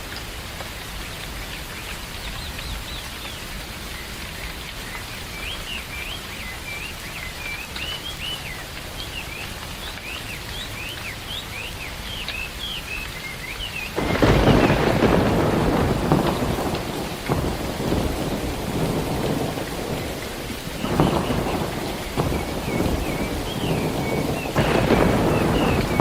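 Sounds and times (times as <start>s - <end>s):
steady rain falling: 0.0s - 26.0s
thunderclap rumbling: 14.0s - 26.0s
bird chirping: 20.8s - 26.0s.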